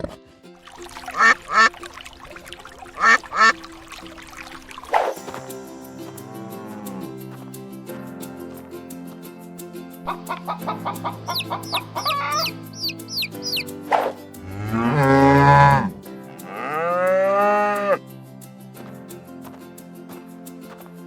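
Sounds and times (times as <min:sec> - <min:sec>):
background music: 0:00.0 - 0:21.0
poultry clucking: 0:01.2 - 0:01.7, 0:03.0 - 0:03.6, 0:10.1 - 0:18.0
high chirps: 0:10.1 - 0:15.9
cow mooing: 0:14.4 - 0:18.0.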